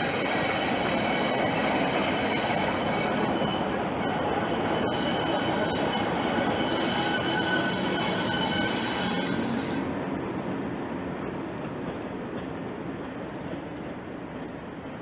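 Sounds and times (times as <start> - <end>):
high squeal with steady tones: 0.0 - 9.8
train rumble: 0.0 - 15.0.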